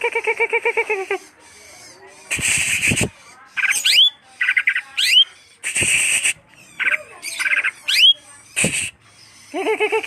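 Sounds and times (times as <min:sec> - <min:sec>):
harsh rasping bird call: 0:00.0 - 0:10.0
bird singing with whistles: 0:02.3 - 0:09.6.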